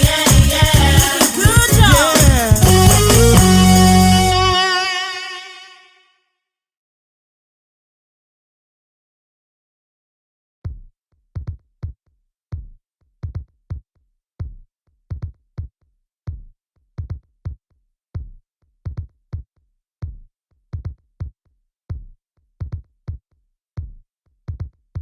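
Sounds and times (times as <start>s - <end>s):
drum machine beat: 0.0s - 4.6s, 10.7s - 13.8s, 14.4s - 17.6s, 18.2s - 23.2s, 23.8s - 25.0s.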